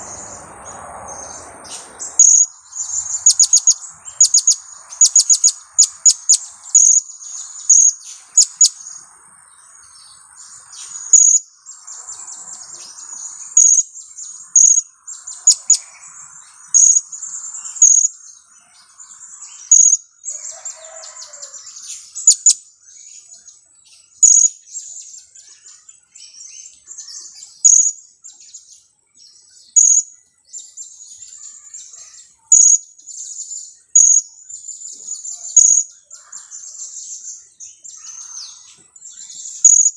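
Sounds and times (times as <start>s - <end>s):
parrot sharp high chirps: 2.2s - 9.0s, 10.9s - 11.4s, 14.5s - 15.8s, 19.6s - 20.0s, 22.2s - 22.6s, 31.4s - 32.9s, 39.5s - 39.9s.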